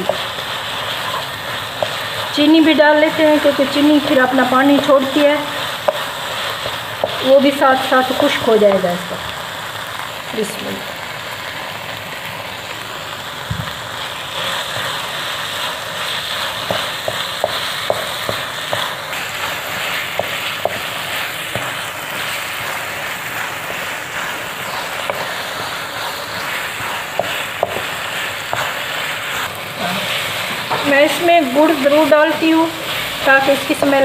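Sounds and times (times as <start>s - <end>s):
halwa sizzling in a pan: 0.0s - 34.0s
spatula scraping and tapping a pan: 1.0s - 2.3s, 5.8s - 8.0s, 16.6s - 22.8s, 24.2s - 31.3s, 32.9s - 34.0s.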